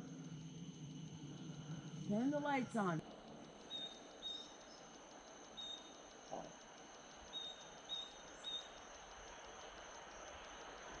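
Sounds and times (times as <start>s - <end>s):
insect trill: 0.0s - 11.0s
high insect chirps: 3.6s - 10.8s.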